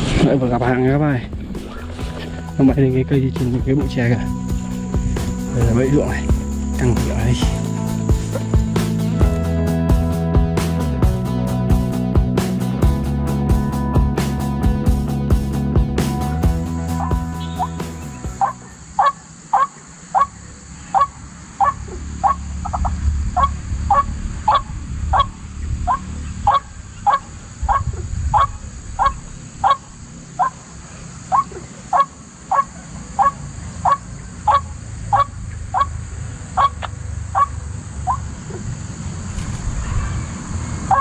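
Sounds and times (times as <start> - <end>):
low rumble: 0.0 - 12.1, 21.8 - 30.3
waterhen harsh calls: 18.4 - 30.7, 31.3 - 36.0, 36.6 - 38.2.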